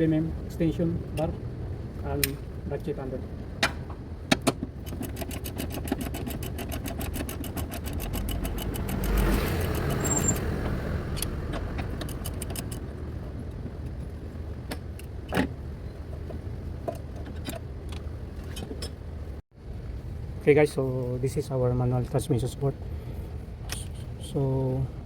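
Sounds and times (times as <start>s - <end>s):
ratchet clicking fast: 4.8s - 10.0s.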